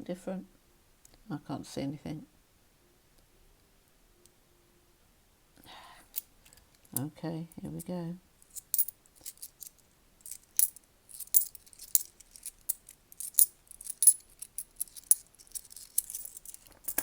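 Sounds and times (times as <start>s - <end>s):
coins clinking: 8.4s - 17.0s.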